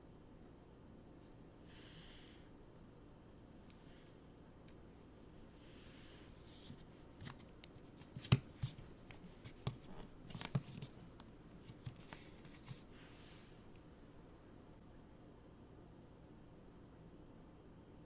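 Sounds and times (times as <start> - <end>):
packaging rustling: 6.7 - 12.9.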